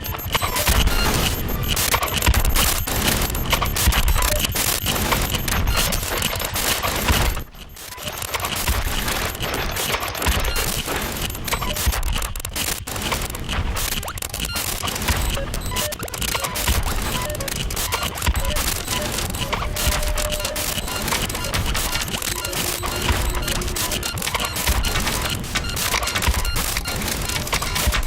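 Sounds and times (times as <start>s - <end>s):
crackling electronic noise music: 0.0s - 28.0s.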